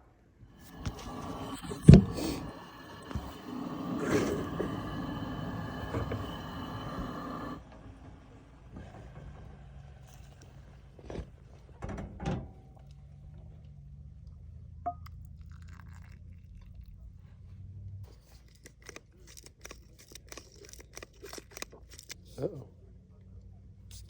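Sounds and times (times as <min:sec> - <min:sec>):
low steady hum: 0:09.6 - 0:18.1
crunching and chewing: 0:15.1 - 0:17.4, 0:18.1 - 0:22.6.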